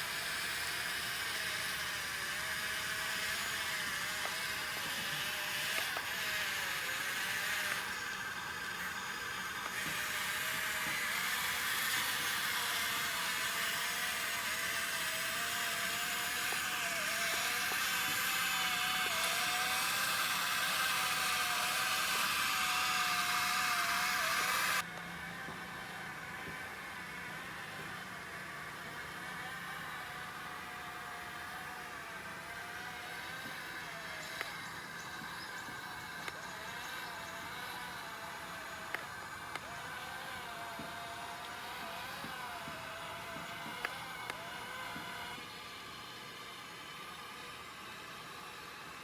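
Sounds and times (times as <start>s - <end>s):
small electric motor whining: 0.0s - 49.0s.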